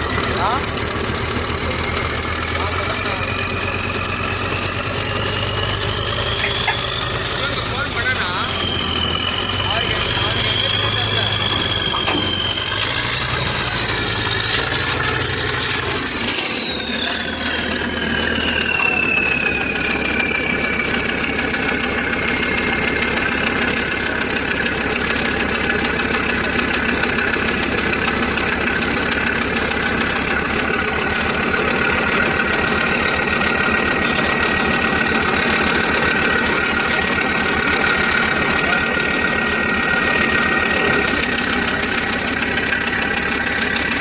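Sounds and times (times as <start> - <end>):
high whine falling in pitch: 0.0 - 25.2
engine running: 0.0 - 44.0.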